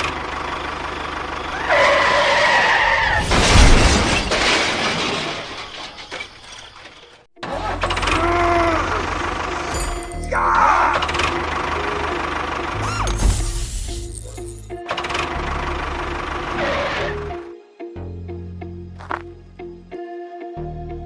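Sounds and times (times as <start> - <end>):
loud crash with shattering: 3.0 - 7.2.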